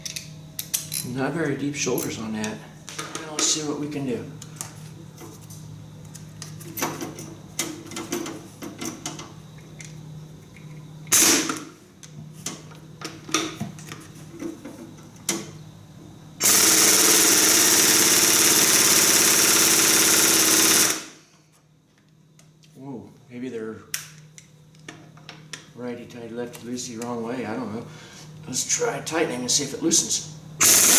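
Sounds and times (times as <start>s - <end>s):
tools clicking on metal: 0.0s - 1.1s
impact wrench hammering: 16.4s - 21.0s.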